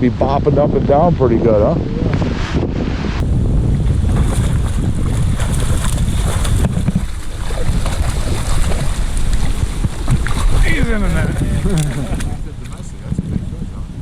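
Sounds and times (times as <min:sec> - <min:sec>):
wind buffeting microphone: 0:00.0 - 0:14.0
water splashing and lapping: 0:03.4 - 0:13.6.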